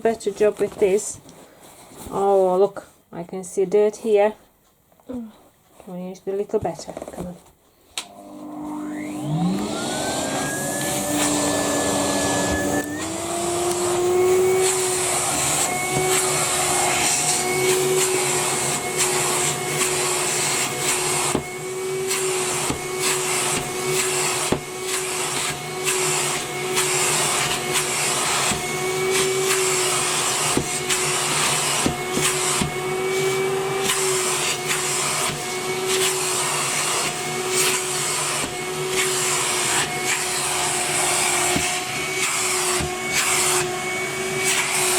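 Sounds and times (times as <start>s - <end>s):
vacuum cleaner motor whine: 8.0s - 44.9s.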